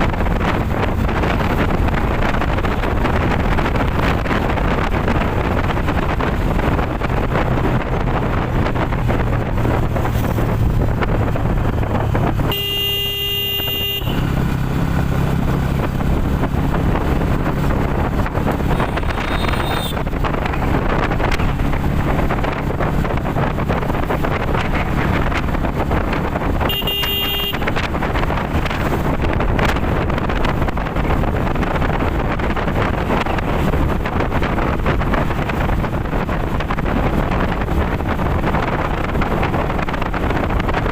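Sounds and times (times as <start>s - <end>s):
motorcycle engine hum: 0.0s - 40.9s
wind rushing over microphone: 0.0s - 40.9s
vehicle horn: 12.4s - 14.3s, 18.7s - 20.1s, 26.6s - 27.8s.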